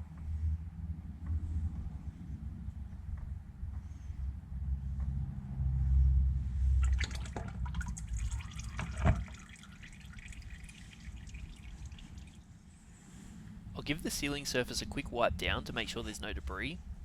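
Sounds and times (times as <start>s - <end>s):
low rumble: 0.0s - 9.4s, 10.5s - 17.0s
oil dripping: 6.8s - 12.5s.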